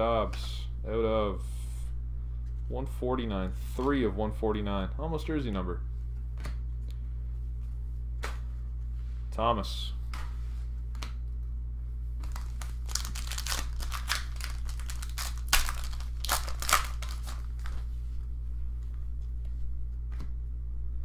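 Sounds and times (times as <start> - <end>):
steady low hum: 0.0 - 21.0
cards rustling and sliding: 12.2 - 17.9.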